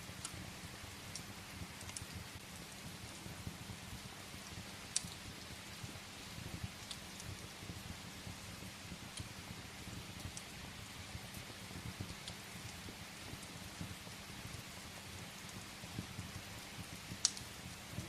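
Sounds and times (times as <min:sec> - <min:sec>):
rain on a window: 0:00.0 - 0:18.0
faint sharp ticks: 0:17.2 - 0:17.5.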